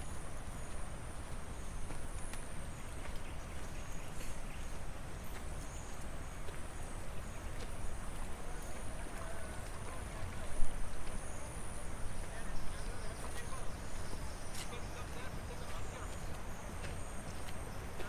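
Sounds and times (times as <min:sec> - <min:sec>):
faint distant voices: 0:02.7 - 0:18.0.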